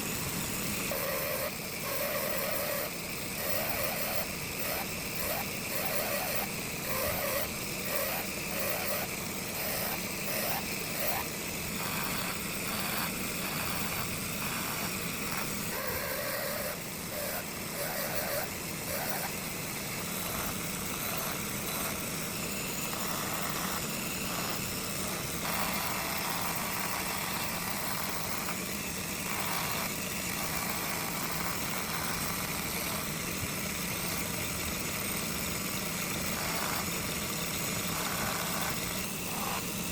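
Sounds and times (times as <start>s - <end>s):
power tool motor running: 0.0s - 39.9s.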